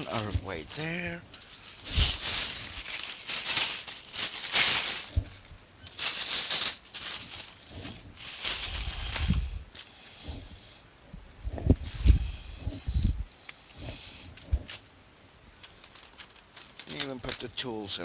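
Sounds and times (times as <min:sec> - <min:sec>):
plastic parts rattling and rustling: 0:00.0 - 0:10.0, 0:15.6 - 0:18.0.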